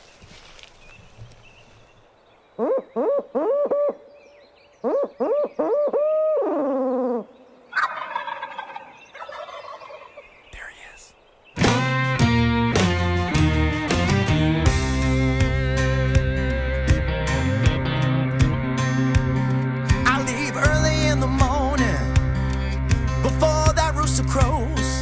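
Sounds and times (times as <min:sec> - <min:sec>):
turkey yelps: 0:04.9 - 0:10.2
turkey rattling gobble: 0:07.7 - 0:10.2.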